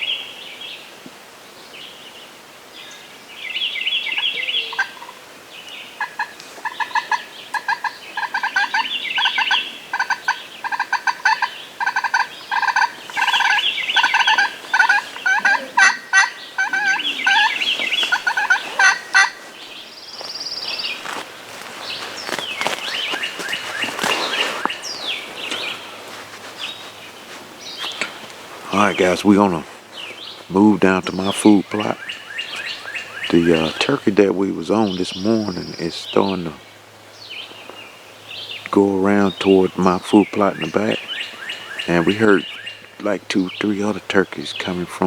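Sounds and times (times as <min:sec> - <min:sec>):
high trilling songbird calls: 0:02.9 - 0:21.2, 0:21.8 - 0:45.0
turkey gobbling: 0:04.1 - 0:05.2, 0:06.0 - 0:19.8, 0:22.3 - 0:26.7, 0:30.7 - 0:36.6, 0:38.7 - 0:45.0.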